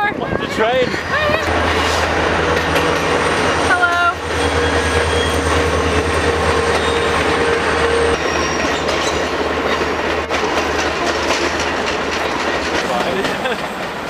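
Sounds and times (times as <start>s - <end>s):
train rumble: 0.0s - 14.0s
wheels clattering over rail joints: 0.5s - 14.0s
metallic wheel squeal: 3.3s - 9.4s.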